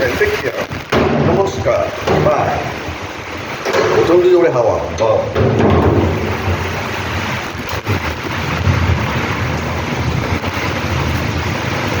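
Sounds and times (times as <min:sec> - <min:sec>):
heavy rain pouring: 0:00.0 - 0:12.0
wind gusts on microphone: 0:05.8 - 0:12.0.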